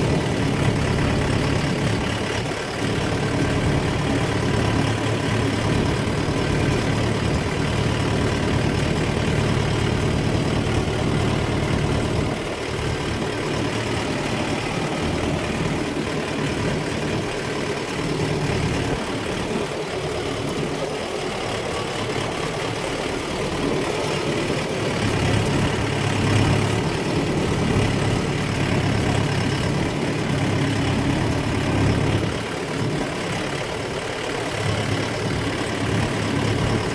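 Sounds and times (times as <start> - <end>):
tractor engine humming: 0.0 - 36.9.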